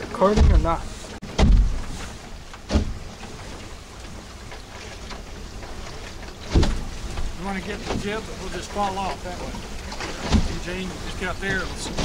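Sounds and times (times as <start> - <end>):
water rushing: 0.0 - 12.0
dull thumps: 0.1 - 3.3, 6.4 - 8.2, 9.9 - 12.0.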